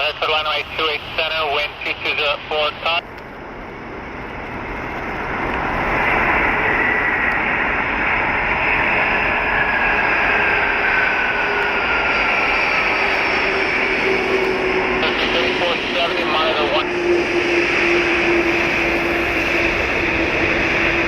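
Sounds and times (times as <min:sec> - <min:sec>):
jet engines passing: 0:00.0 - 0:21.0
high whine sliding down: 0:05.2 - 0:21.0.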